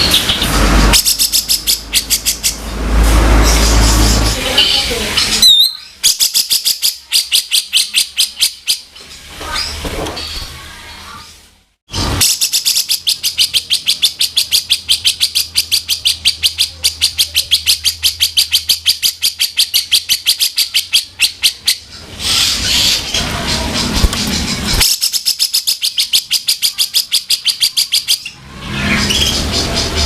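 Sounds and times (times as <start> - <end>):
bird rasping chatter: 12.2 - 30.0.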